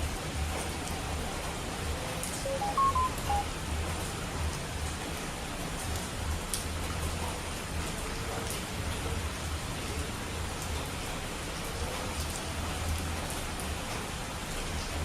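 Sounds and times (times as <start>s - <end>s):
rain falling on a surface: 0.0s - 15.0s.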